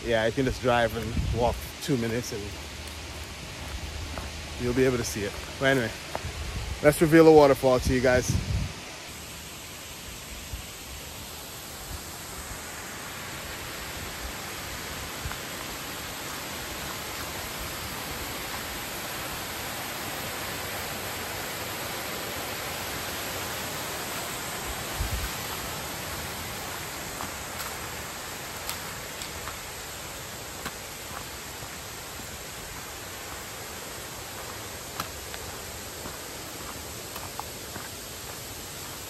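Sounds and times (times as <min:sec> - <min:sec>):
waterfall rushing: 0:08.8 - 0:39.0.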